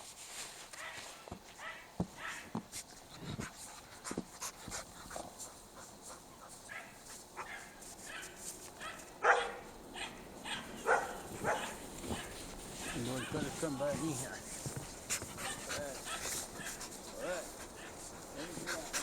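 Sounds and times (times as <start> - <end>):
dogs yipping and barking: 6.6 - 13.6, 15.2 - 18.1.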